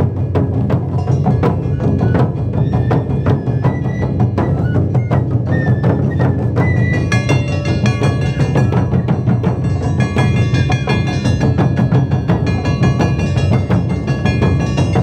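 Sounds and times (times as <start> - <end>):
ensemble of drums playing: 0.0 - 15.0
high held melodic line: 6.9 - 15.0.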